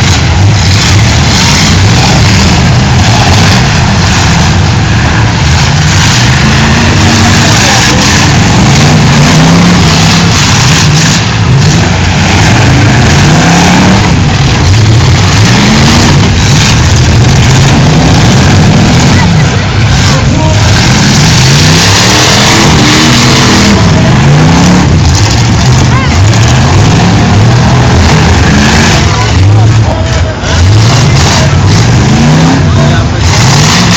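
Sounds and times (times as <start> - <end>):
car engines revving: 0.0 - 33.9
loud steady wash of noise: 0.0 - 33.9.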